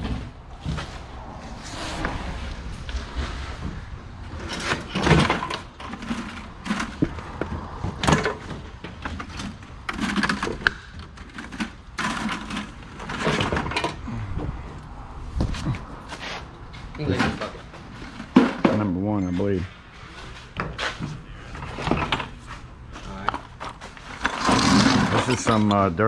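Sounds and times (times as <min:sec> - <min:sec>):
scrap metal clattering into bins: 0:04.4 - 0:07.4, 0:08.0 - 0:14.0, 0:17.1 - 0:18.9, 0:24.1 - 0:25.6.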